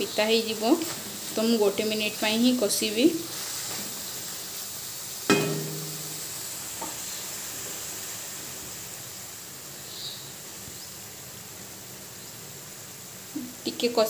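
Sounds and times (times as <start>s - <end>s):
paste sizzling in hot pan: 0.0s - 10.5s
sharp ringing clink: 5.3s - 6.4s.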